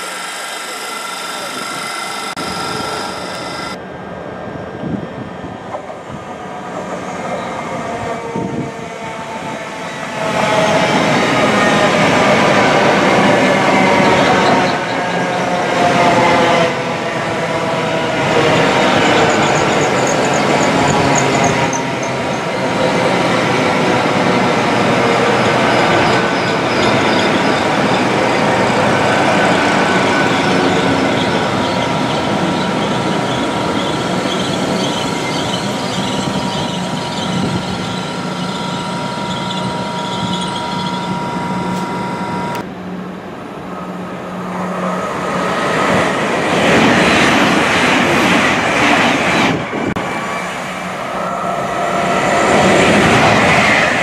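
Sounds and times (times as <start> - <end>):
high wavering squeal: 0.0 - 3.8, 25.4 - 42.6
train rushing past: 0.0 - 54.0
train whine: 0.0 - 54.0.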